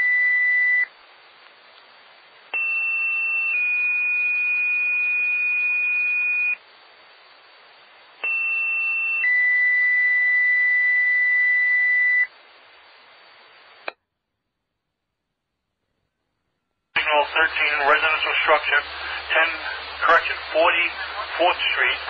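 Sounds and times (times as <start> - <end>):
radio hiss: 4.3 - 9.3, 11.3 - 14.0, 17.0 - 22.0
radio squelch burst: 17.0 - 22.0.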